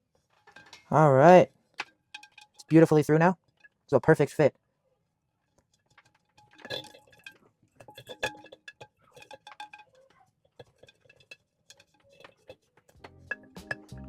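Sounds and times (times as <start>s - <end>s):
clinks on a ceramic bowl: 6.6s - 12.3s.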